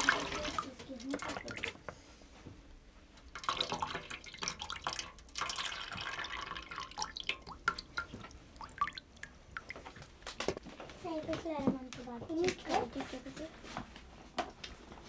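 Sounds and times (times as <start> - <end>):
water splashing: 0.0 - 1.8, 3.3 - 10.6
water dripping: 0.0 - 2.0, 3.1 - 10.7.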